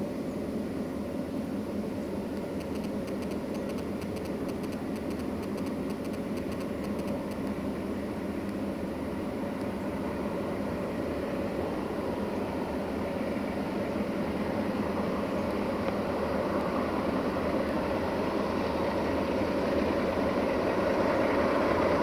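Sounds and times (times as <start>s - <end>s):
train diesel engine running: 0.0s - 22.0s
faint rapid ticking: 2.4s - 7.6s.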